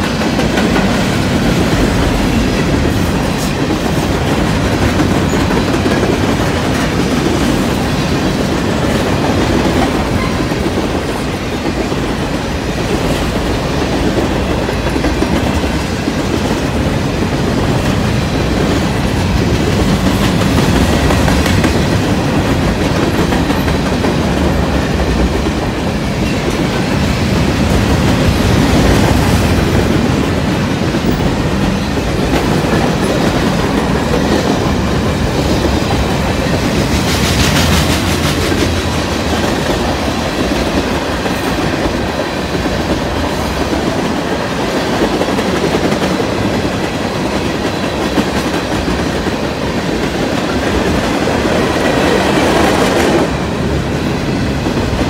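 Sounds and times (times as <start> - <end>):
clickety-clack over rail joints: 0.0 - 55.0
freight train wheels rumbling on rails: 0.0 - 55.0.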